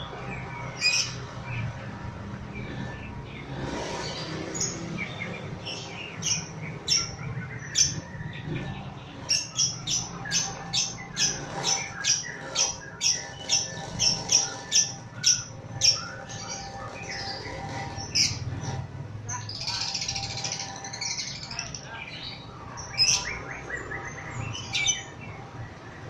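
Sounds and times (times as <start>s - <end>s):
lovebird squawking: 9.2s - 21.9s, 22.8s - 25.2s.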